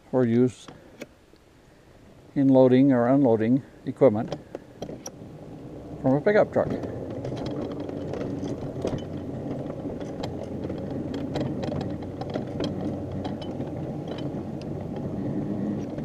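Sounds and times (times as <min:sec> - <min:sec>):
irregular clicks and ticks: 0:06.6 - 0:15.1.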